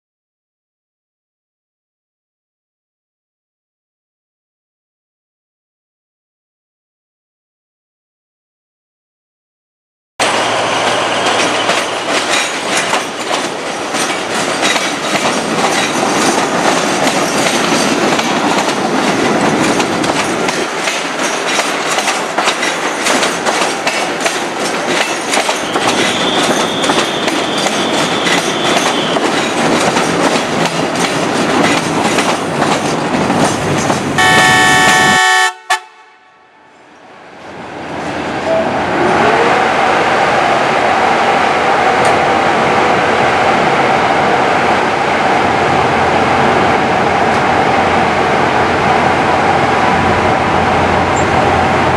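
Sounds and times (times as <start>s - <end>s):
train wheel clatter: 10.2s - 35.2s
train rumble: 10.2s - 51.9s
train horn blast: 34.2s - 36.8s.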